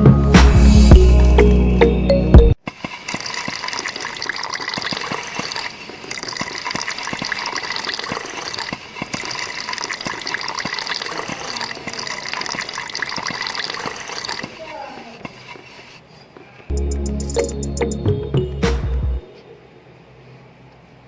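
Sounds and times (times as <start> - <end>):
background music: 0.0 - 2.6, 16.7 - 19.6
water splashing: 2.6 - 16.0.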